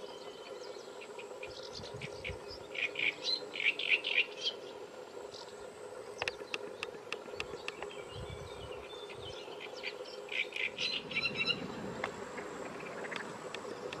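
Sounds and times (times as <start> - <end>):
birds chirping: 0.0 - 14.0
steady low hum: 0.0 - 14.0
scattered ticks: 6.1 - 8.0, 12.0 - 14.0.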